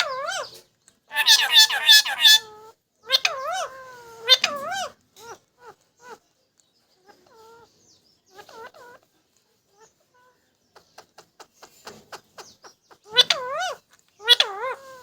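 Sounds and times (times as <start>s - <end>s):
parrot soft calls: 0.0s - 6.3s, 7.0s - 9.1s, 13.0s - 15.0s.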